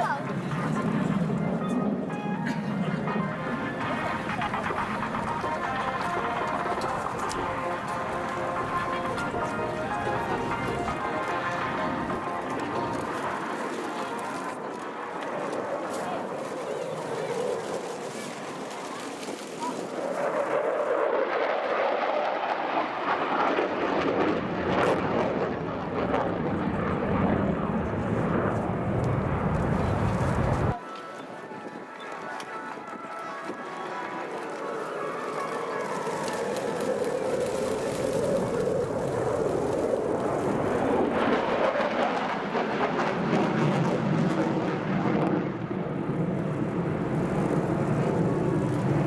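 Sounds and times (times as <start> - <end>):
jet roar: 0.0 - 49.0
deep jet rumble: 2.5 - 16.5, 23.8 - 30.8.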